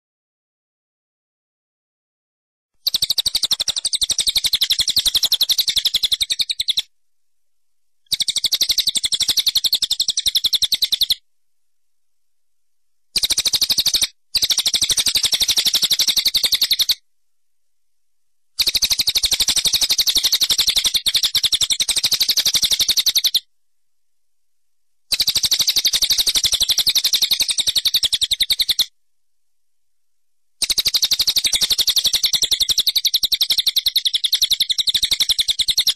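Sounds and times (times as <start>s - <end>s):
birds chirping in rapid trill: 2.8s - 6.8s, 8.1s - 11.2s, 30.6s - 35.9s.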